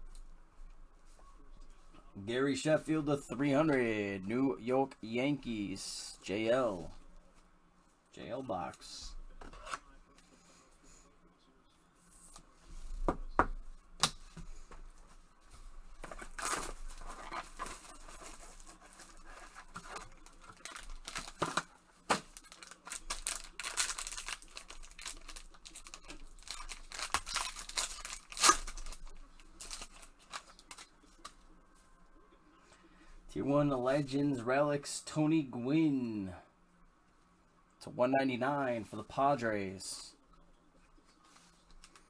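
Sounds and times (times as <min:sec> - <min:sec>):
wrapper and cardboard tearing: 0:16.0 - 0:31.3
sharp clicks and rustles: 0:16.0 - 0:31.4.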